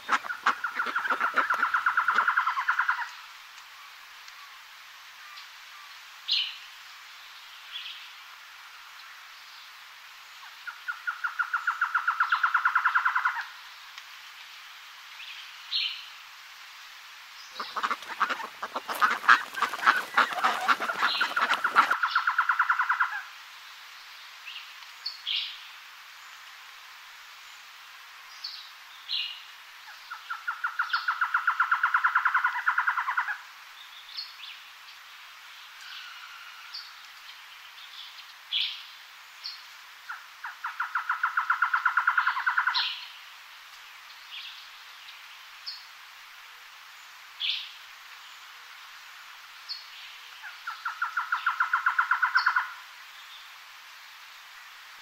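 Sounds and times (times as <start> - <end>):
small birds chirping: 0.0 - 3.1, 17.3 - 22.8
bird rattling calls: 17.6 - 22.5.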